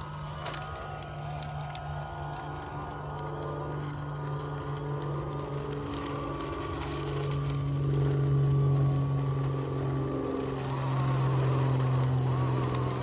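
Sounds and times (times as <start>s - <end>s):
toy truck motor whining: 10.3s - 13.0s.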